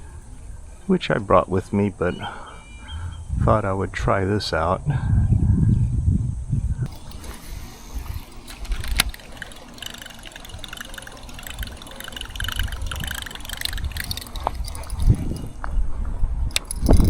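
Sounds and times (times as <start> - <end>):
wind rumble on microphone: 2.9 - 9.2, 12.4 - 17.0
water splashing and gurgling: 6.9 - 15.6
sharp click: 16.5 - 17.0.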